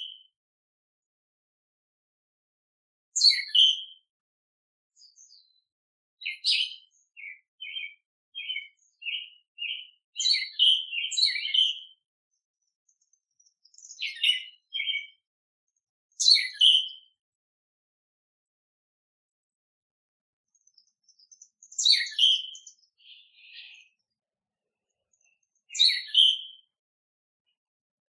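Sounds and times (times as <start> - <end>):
songbirds chirping: 0.0 - 0.4, 3.0 - 4.2, 4.9 - 17.4, 20.4 - 27.9.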